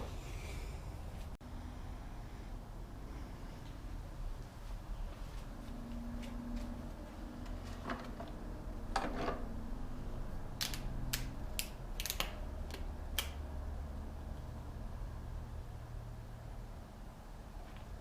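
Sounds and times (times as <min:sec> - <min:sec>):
steady low hum: 0:00.0 - 0:18.0
sharp plastic clicks: 0:10.6 - 0:13.4.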